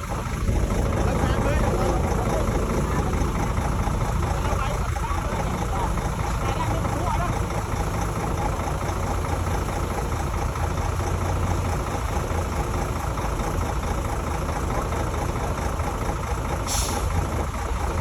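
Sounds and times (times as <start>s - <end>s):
bulldozer diesel engine rumbling: 0.0s - 18.0s.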